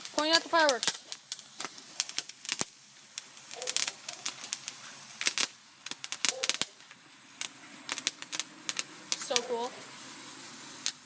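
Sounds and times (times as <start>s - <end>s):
sparkler crackling and popping: 0.0s - 11.0s.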